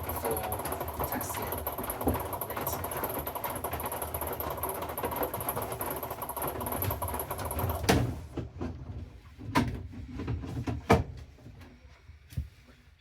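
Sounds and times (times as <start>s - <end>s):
washing machine running: 0.0s - 9.3s.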